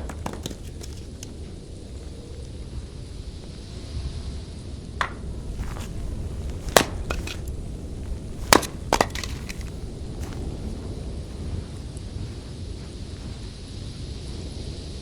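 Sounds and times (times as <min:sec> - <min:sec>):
dry wood cracking: 0:00.0 - 0:01.4, 0:05.0 - 0:10.9.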